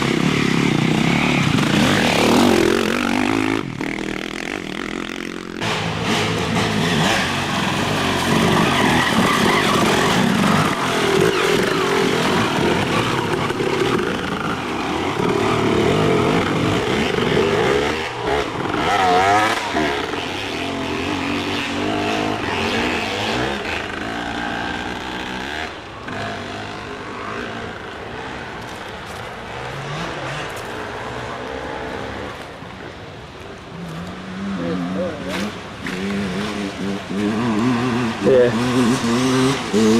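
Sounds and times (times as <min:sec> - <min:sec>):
dirt bike engines revving past: 0:00.0 - 0:39.9.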